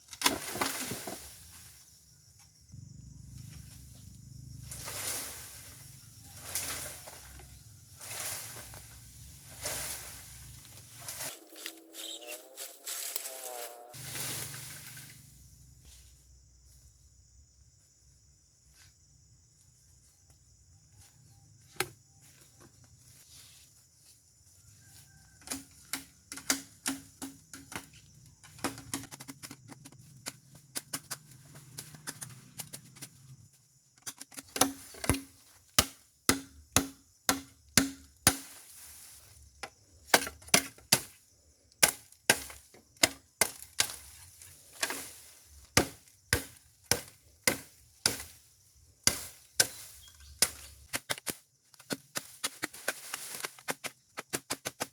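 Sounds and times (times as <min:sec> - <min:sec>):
blade chopping bamboo: 0:25.4 - 0:27.9, 0:34.0 - 0:38.7, 0:40.1 - 0:41.2, 0:41.8 - 0:44.2, 0:44.8 - 0:54.9.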